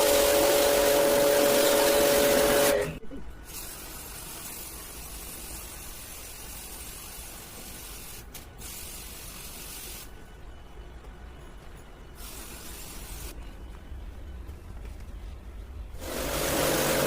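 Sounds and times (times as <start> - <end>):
pressure spray jet hissing: 0.0 - 10.1, 12.2 - 13.4, 16.0 - 17.0
steady low rumble: 13.1 - 16.0.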